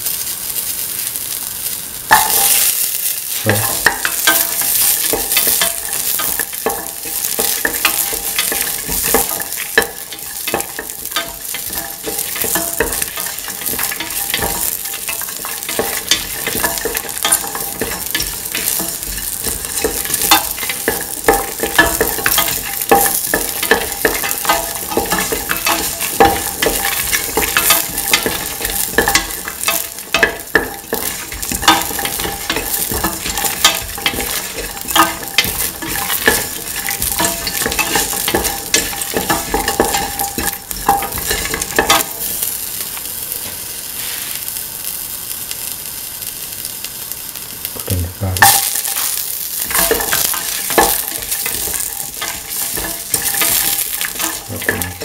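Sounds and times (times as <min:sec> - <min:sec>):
food sizzling in oil: 0:00.0 - 0:55.0
utensil scraping metal pan: 0:03.5 - 0:42.4, 0:49.7 - 0:55.0.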